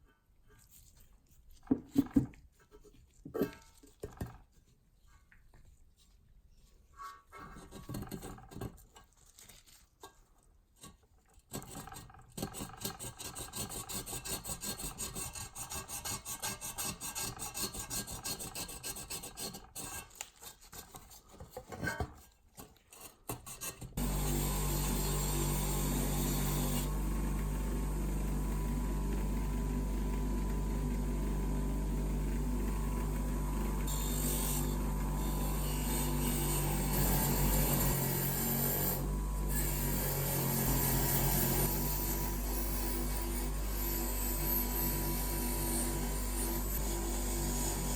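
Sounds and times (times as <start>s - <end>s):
hand abrasive rasping on metal: 10.8s - 21.5s, 22.8s - 24.0s
power tool motor hum: 24.0s - 47.9s.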